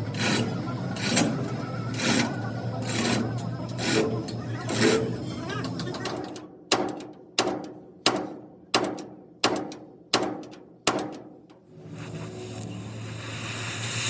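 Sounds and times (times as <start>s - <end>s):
hammer striking steel: 6.0s - 11.6s.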